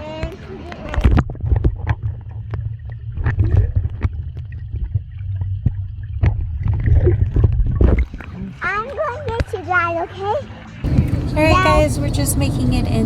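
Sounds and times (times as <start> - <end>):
wind buffeting microphone: 10.8 - 13.0.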